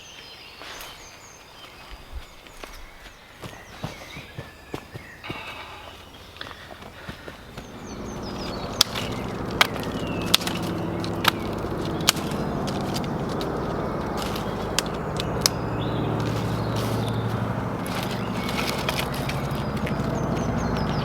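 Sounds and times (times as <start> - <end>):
dry sticks snapping: 6.3 - 21.0
steady low drone: 7.4 - 21.0.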